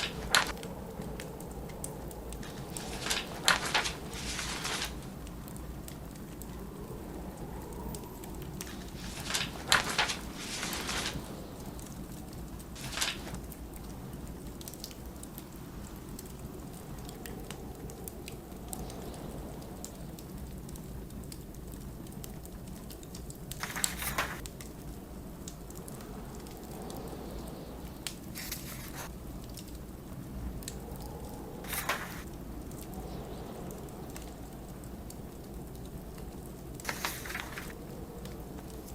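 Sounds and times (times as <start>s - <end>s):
book pages turning: 0.0s - 0.5s, 2.4s - 5.0s, 8.6s - 11.3s, 12.8s - 13.4s, 23.6s - 24.4s, 28.4s - 29.1s, 31.7s - 32.3s, 36.8s - 37.8s
snowstorm wind rumble: 0.0s - 38.9s
wood fire crackling: 0.0s - 38.9s.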